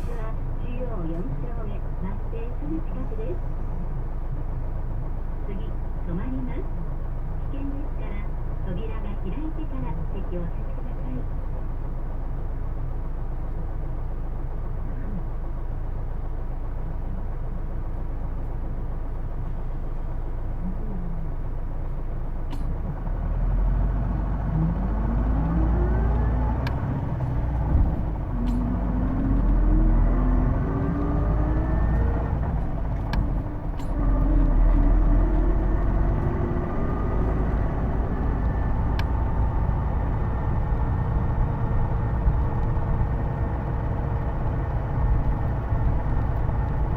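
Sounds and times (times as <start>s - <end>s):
bus engine rumbling: 0.0s - 46.9s
transmission whine: 22.5s - 46.9s.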